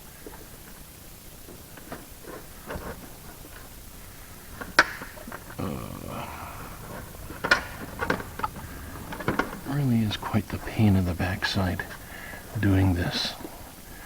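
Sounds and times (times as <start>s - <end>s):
metal parts clicking and scraping: 4.5s - 10.3s.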